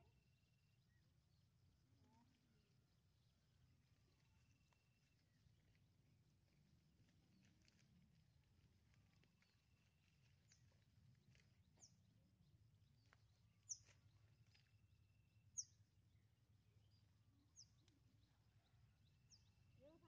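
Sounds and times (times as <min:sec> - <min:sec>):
bird chirping: 0:12.8 - 0:20.0.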